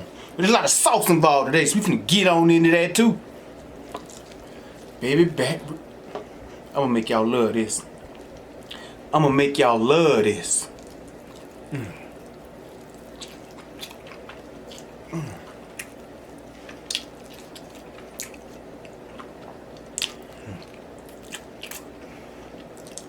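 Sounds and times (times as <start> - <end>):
wet chewing and lip smacks: 3.6 - 5.0, 7.8 - 8.9, 10.7 - 23.0
man humming: 15.1 - 15.5.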